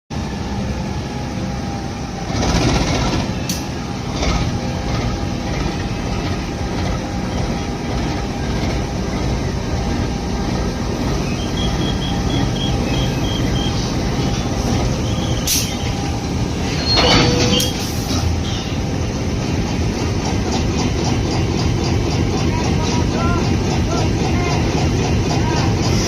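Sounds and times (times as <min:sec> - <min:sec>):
diesel engine running: 0:00.1 - 0:26.0
machinery noise bursts: 0:00.2 - 0:26.0
electronic warning beeps: 0:11.2 - 0:17.8.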